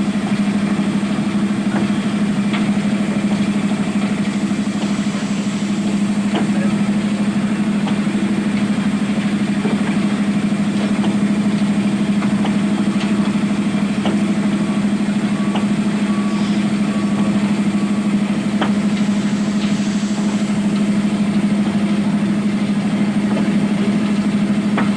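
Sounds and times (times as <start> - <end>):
excavator diesel engine humming: 0.0 - 24.9
warning alarm beeps: 14.7 - 20.8.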